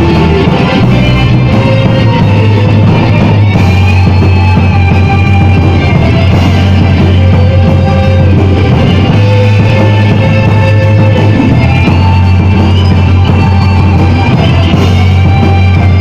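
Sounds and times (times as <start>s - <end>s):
metal band playing live: 0.0s - 16.0s.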